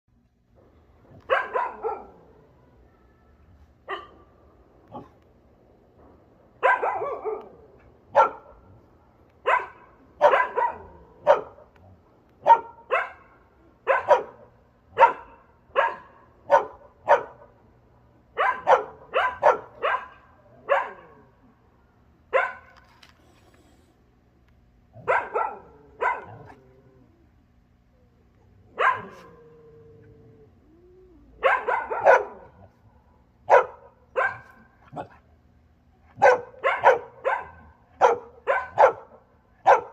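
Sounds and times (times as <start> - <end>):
dog barking: 1.2 - 2.2, 3.8 - 4.3, 6.6 - 8.7, 9.4 - 11.7, 12.4 - 17.5, 18.4 - 21.2, 22.3 - 22.8, 25.0 - 26.6, 28.7 - 29.4, 31.4 - 32.7, 33.5 - 35.2, 36.1 - 39.9
dog whining: 28.0 - 32.5.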